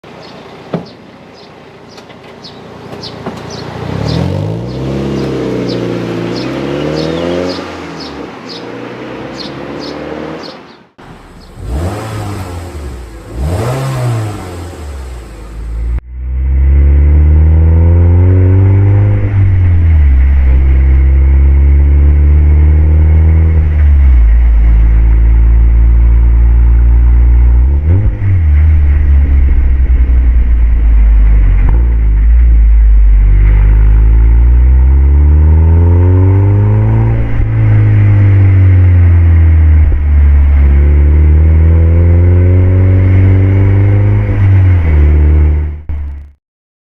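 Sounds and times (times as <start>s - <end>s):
car engine accelerating: 2.9s - 46.3s
deep steady engine drone: 10.9s - 46.3s.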